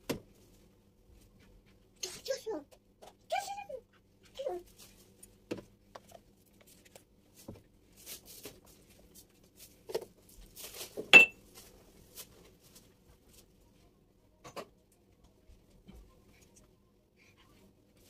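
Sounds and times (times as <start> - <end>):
kitchenware knocks and clinks: 11.1 - 11.4.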